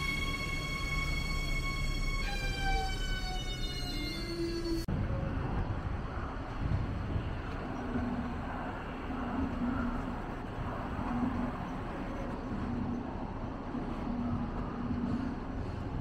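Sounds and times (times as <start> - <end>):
train low rumble: 0.0 - 16.0
pulsing low hum: 4.9 - 16.0.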